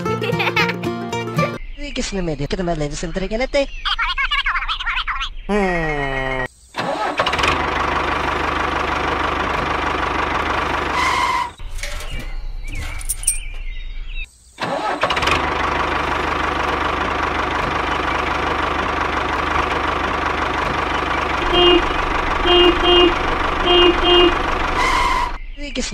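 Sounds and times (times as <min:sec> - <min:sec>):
small engine running: 0:07.1 - 0:11.6, 0:14.9 - 0:25.4.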